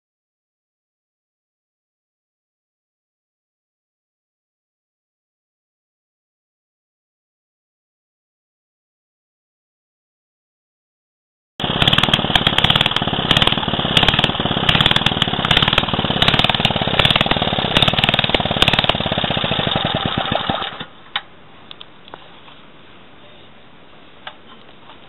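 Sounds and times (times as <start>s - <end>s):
small engine rattling: 11.6s - 20.9s.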